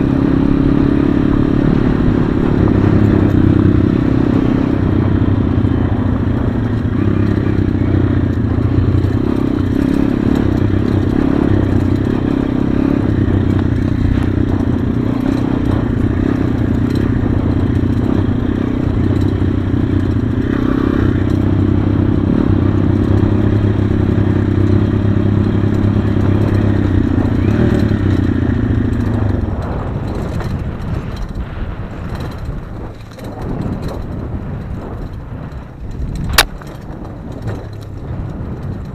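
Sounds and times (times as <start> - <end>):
pit bike engine running: 0.0 - 38.9.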